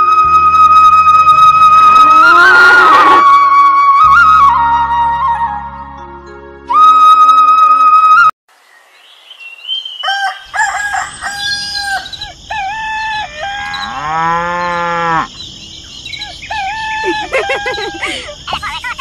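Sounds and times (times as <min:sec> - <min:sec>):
rooster crowing and clucking: 0:10.0 - 0:12.2
cow mooing: 0:13.6 - 0:15.3.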